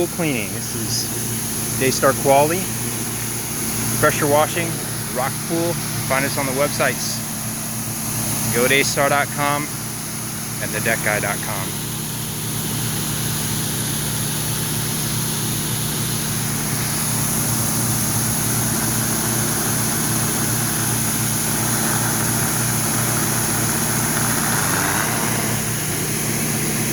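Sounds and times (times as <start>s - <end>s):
pressure washer engine running: 0.0s - 26.9s
water spray hissing: 0.0s - 26.9s.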